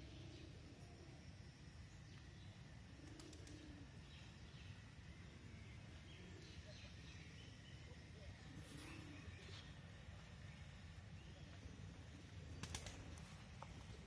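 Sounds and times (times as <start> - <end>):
low cooing bird call: 0.0 - 1.2, 2.5 - 9.9.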